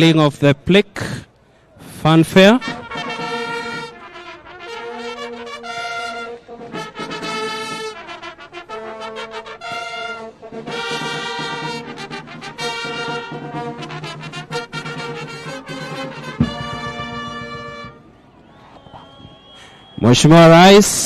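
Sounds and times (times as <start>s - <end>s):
brass fanfare: 2.2s - 18.1s.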